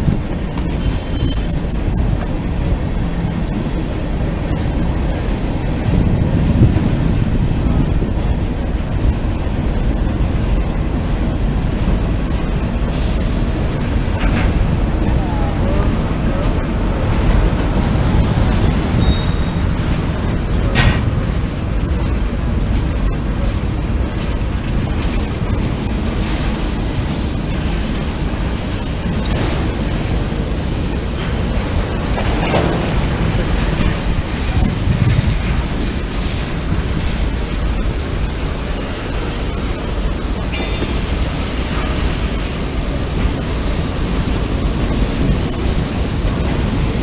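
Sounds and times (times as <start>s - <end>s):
freight train cars rolling: 0.0s - 47.0s
high squeal of train wheels: 0.7s - 2.4s, 18.6s - 20.0s, 40.5s - 42.1s.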